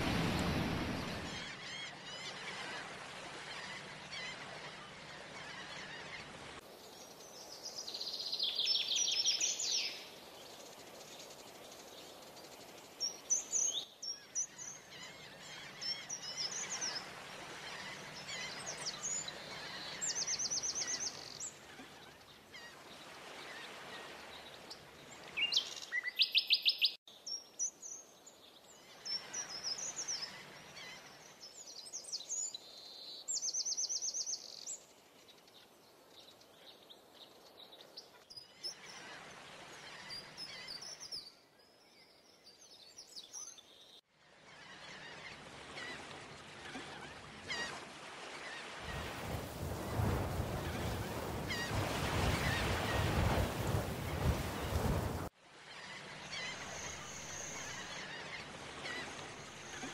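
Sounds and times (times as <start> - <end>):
steady background hiss: 0.0 - 59.9.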